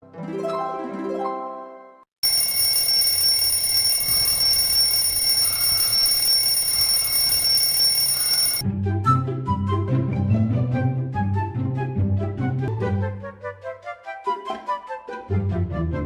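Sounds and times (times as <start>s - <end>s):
bell ringing: 2.2s - 8.6s.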